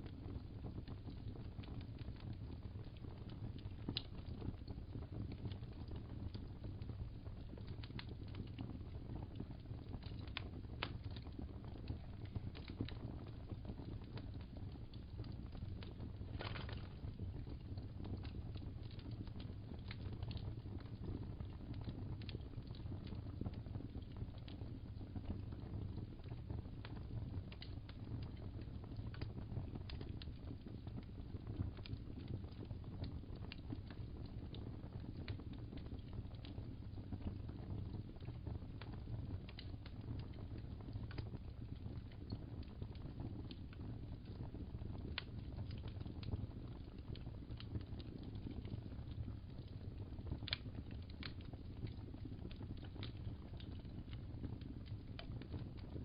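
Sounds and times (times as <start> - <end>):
fireplace crackling: 0.0 - 56.0.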